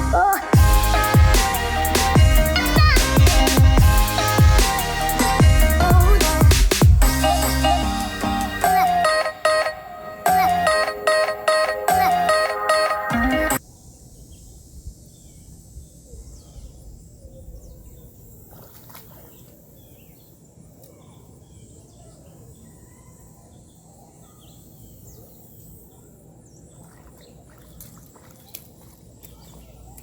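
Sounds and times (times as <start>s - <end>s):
faint bird chirps: 13.7s - 30.0s.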